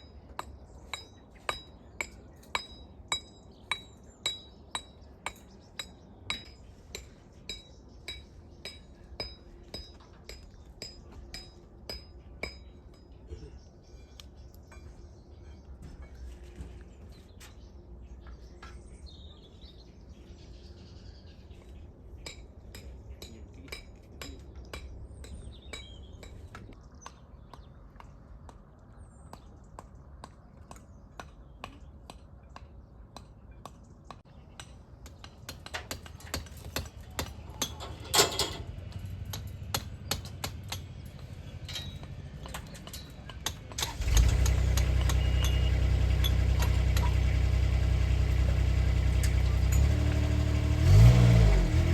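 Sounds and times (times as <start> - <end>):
engine running: 37.0 - 51.9.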